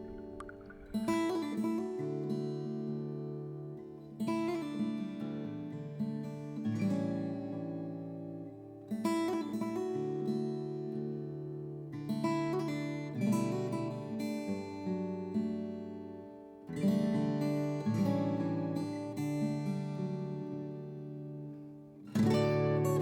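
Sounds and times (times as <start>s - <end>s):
acoustic guitar strumming: 0.0s - 11.6s, 16.7s - 23.0s.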